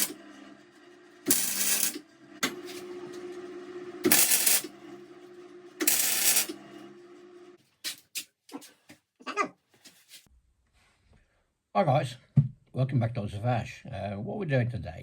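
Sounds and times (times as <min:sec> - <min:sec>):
welding machine hum: 0:00.0 - 0:07.5
welding arc crackle: 0:01.3 - 0:02.0, 0:04.1 - 0:04.7, 0:05.8 - 0:06.5.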